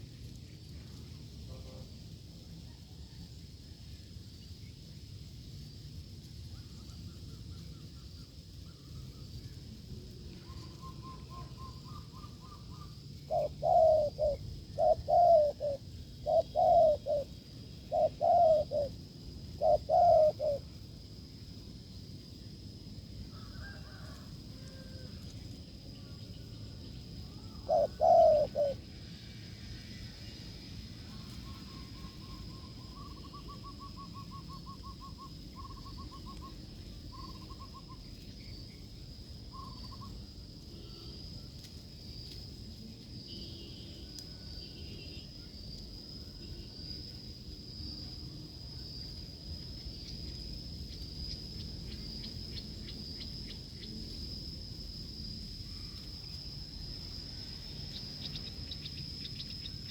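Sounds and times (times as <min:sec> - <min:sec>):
dove cooing: 0:10.4 - 0:20.7, 0:27.3 - 0:28.8.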